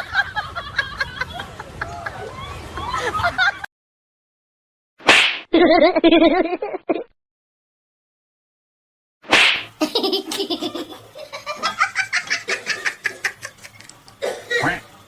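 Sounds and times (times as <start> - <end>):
laughter in quick pulses: 0.0 - 3.7, 5.5 - 7.1, 9.8 - 13.9.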